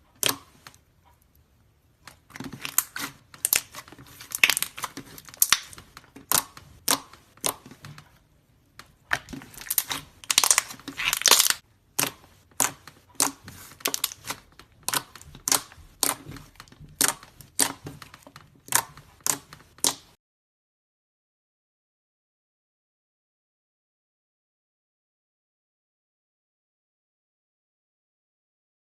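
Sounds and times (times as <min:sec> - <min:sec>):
slime crackling and popping: 0:02.1 - 0:07.9, 0:08.9 - 0:20.2.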